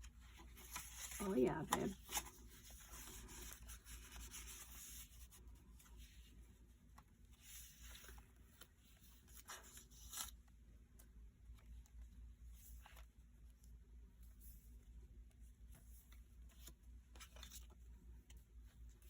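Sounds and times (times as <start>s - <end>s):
soft paper swishes: 0.0s - 10.5s
paper pages rustling: 0.0s - 13.6s, 15.6s - 19.0s.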